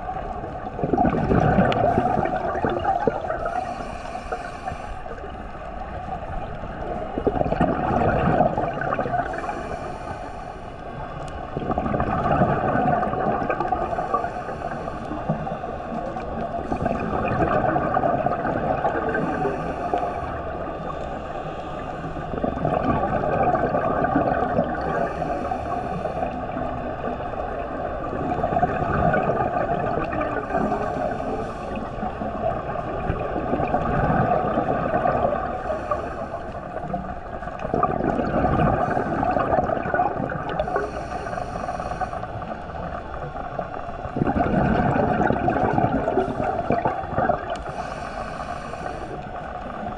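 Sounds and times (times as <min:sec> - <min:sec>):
exhaled bubbles gurgling: 0:00.0 - 0:49.9
regulator hissing inhale: 0:01.7 - 0:05.6, 0:09.1 - 0:11.4, 0:13.6 - 0:17.2, 0:19.0 - 0:22.2, 0:24.6 - 0:27.4, 0:30.1 - 0:32.9, 0:35.3 - 0:37.1, 0:38.6 - 0:39.6, 0:40.5 - 0:44.1, 0:46.0 - 0:46.8, 0:47.4 - 0:49.9.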